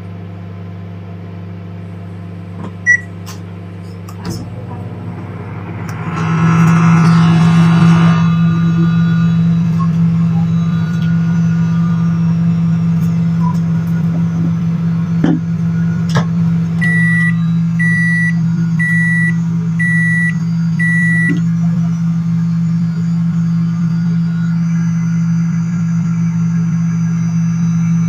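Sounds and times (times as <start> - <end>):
microwave oven humming: 0.0 - 6.6, 8.4 - 28.0
high-pitched microwave beeps: 2.8 - 3.1, 16.8 - 22.0.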